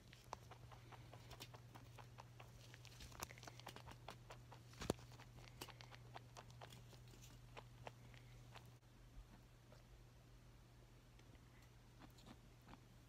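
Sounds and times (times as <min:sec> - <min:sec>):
rabbits rustling with toy balls: 0:00.0 - 0:08.8
faint low hum: 0:00.0 - 0:13.0.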